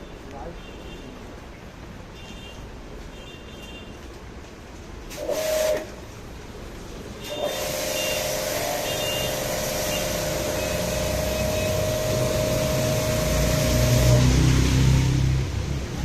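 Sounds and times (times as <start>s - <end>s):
spraying water hiss: 5.0s - 16.0s.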